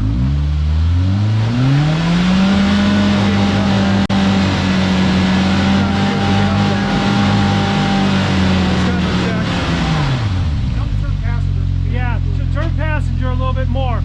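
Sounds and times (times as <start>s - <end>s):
off-road vehicle engine revving: 0.0s - 14.0s
tires spinning on rock: 0.2s - 11.4s.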